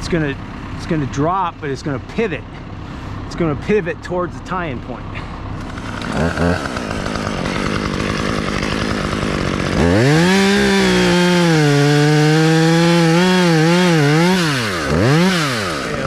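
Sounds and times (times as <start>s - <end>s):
chainsaw revving: 4.4s - 16.0s.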